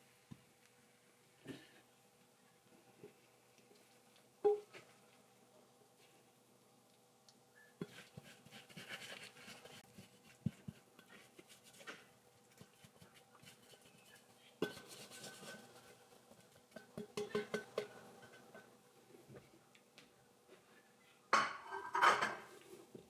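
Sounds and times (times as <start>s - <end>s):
dishes and cutlery clinking: 14.6s - 15.9s, 16.6s - 18.7s, 21.3s - 22.6s.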